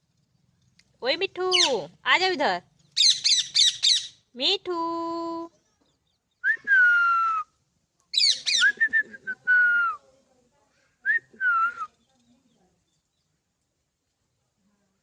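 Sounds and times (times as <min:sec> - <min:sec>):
parakeet harsh whistled calls: 0:01.5 - 0:01.8, 0:03.0 - 0:04.2, 0:08.2 - 0:08.8.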